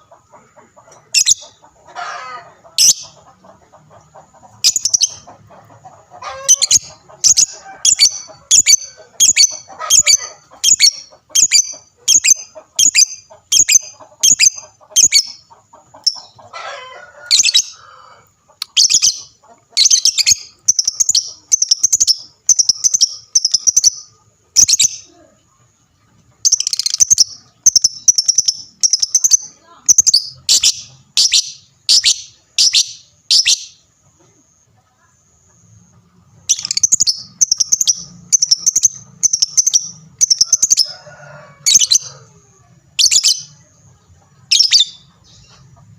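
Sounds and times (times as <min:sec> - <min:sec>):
bird shrill chirps: 0:18.6 - 0:25.1, 0:26.5 - 0:33.8, 0:36.5 - 0:42.2, 0:43.0 - 0:43.6, 0:44.5 - 0:45.5.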